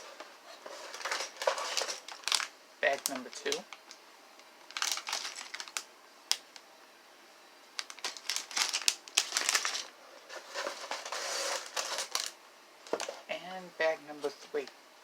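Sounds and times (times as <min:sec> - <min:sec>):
plastic bags crinkling: 0:00.0 - 0:04.0, 0:04.6 - 0:06.6, 0:07.8 - 0:13.2.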